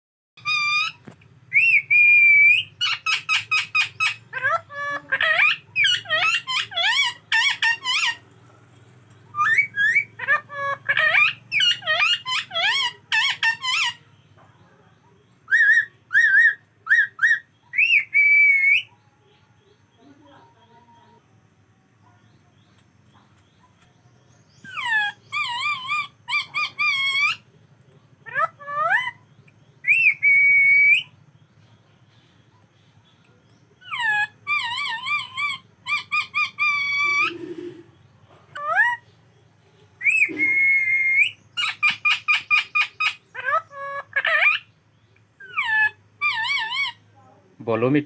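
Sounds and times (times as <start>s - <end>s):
parrot whistling: 0.4s - 8.2s, 9.3s - 14.0s, 15.5s - 18.9s, 24.6s - 27.4s, 29.8s - 31.1s, 33.8s - 37.9s, 40.0s - 44.7s, 45.4s - 47.0s.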